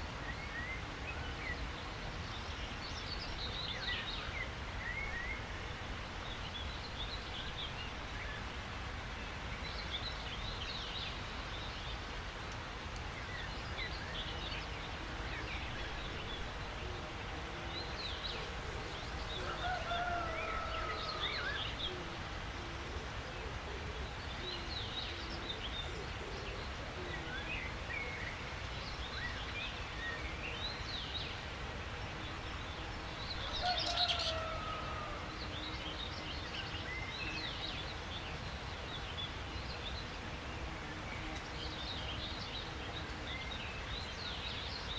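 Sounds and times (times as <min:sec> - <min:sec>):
birds chirping and trilling: 0:13.2 - 0:22.2, 0:22.9 - 0:44.9.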